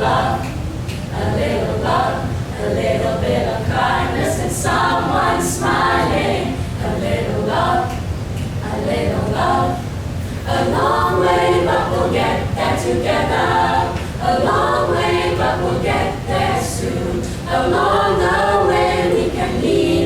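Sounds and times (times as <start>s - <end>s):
choir singing in harmony: 0.0s - 20.0s.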